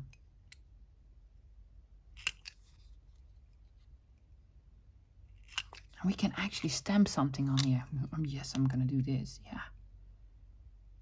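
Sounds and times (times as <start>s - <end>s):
paper-craft tool clicks and snips: 5.4s - 5.9s.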